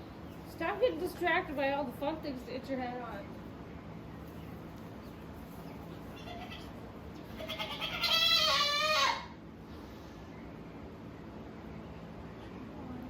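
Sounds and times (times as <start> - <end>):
goat bleating: 6.2 - 9.4.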